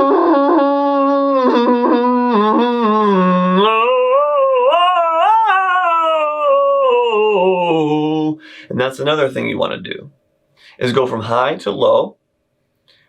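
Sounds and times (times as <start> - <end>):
person singing a long vowel: 0.0 - 8.4.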